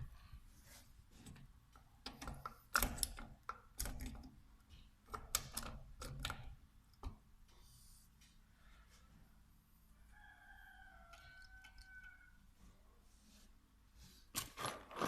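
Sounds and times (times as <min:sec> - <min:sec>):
light clicks and knocks of metal parts: 0:01.1 - 0:09.0.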